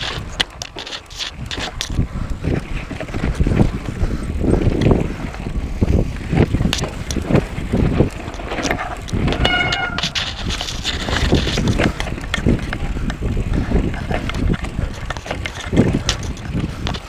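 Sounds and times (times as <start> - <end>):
bike rattling over rocks: 0.0 - 17.0
wind on microphone: 0.0 - 17.0
high-pitched squeal: 9.4 - 10.5.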